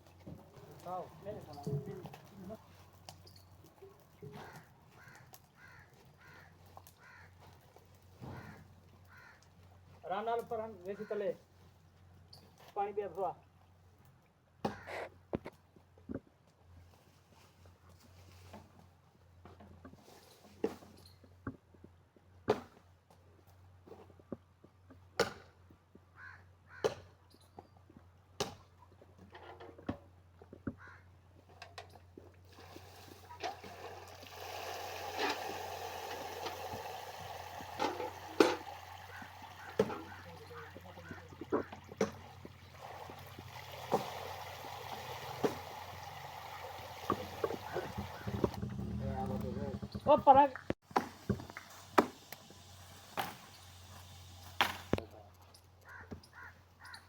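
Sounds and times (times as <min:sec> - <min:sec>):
water running: 0:32.5 - 0:55.0.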